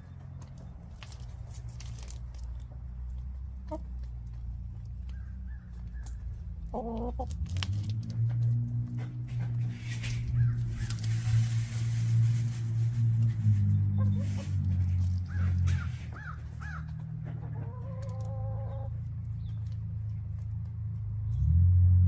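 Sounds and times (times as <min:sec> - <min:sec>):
hens clucking: 0:02.4 - 0:07.5, 0:13.2 - 0:20.2.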